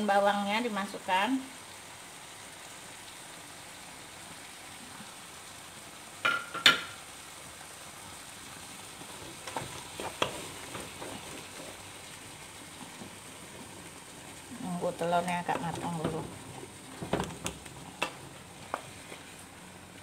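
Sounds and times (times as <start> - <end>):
vegetables sizzling in oil: 0.0 - 20.0
wooden spatula scraping pan: 9.0 - 11.9.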